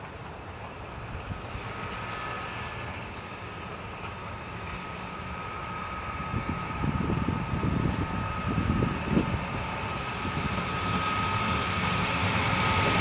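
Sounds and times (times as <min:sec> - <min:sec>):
electric train approaching: 0:00.0 - 0:13.0
wind buffeting microphone: 0:05.5 - 0:13.0.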